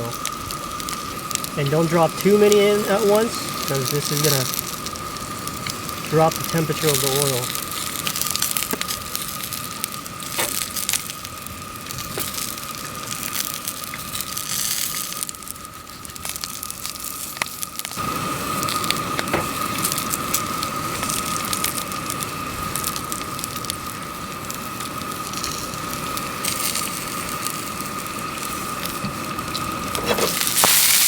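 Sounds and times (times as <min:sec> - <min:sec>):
fish deep-frying in hot oil: 0:00.0 - 0:31.0.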